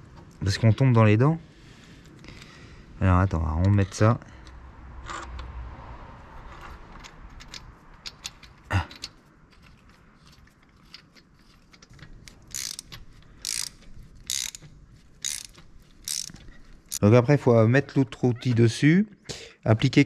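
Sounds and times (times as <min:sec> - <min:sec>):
ratchet wrench clicking: 0:12.2 - 0:17.0
metal tools clinking: 0:12.3 - 0:17.0.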